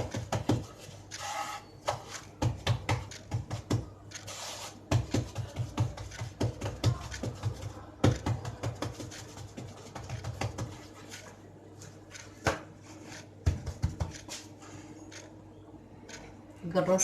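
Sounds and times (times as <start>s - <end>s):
dough thumping on a board: 0.0s - 0.8s, 1.8s - 4.0s, 4.9s - 10.9s, 13.4s - 14.4s.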